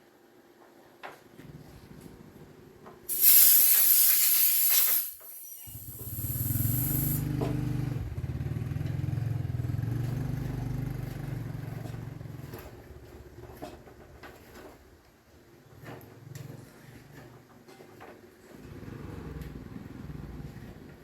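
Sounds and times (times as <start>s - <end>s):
loud spraying hiss: 3.1s - 7.2s
small motor humming: 3.1s - 7.4s.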